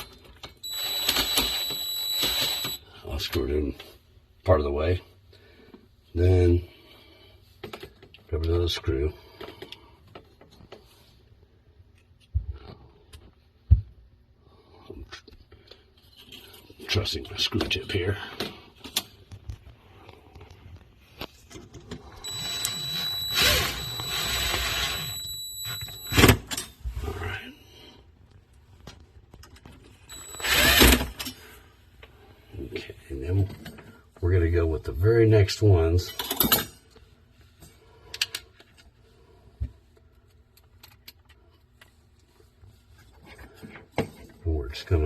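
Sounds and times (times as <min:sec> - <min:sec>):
cordless screw gun whining: 0:00.7 - 0:02.8, 0:22.2 - 0:26.4, 0:30.1 - 0:31.3.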